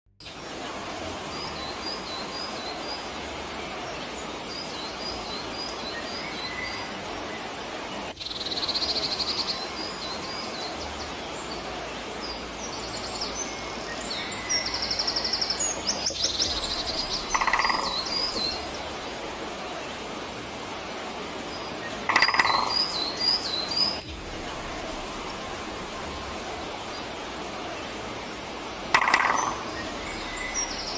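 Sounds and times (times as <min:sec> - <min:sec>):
background hiss: 0:00.2 - 0:30.9
birds chirping: 0:00.2 - 0:30.9
buzzy bird trills: 0:13.6 - 0:18.8, 0:22.1 - 0:24.0, 0:28.9 - 0:30.9.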